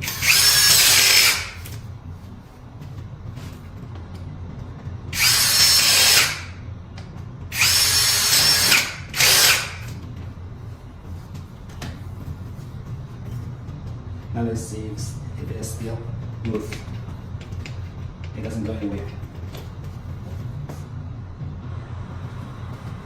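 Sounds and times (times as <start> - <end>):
cordless drill whining: 0.0 - 1.8, 5.2 - 6.5, 7.5 - 10.0.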